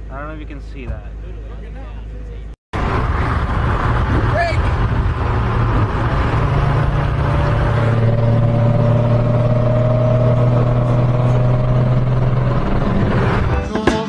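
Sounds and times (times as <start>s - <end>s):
road and wind noise: 0.0s - 13.6s
car engine droning at high revs: 2.8s - 13.6s.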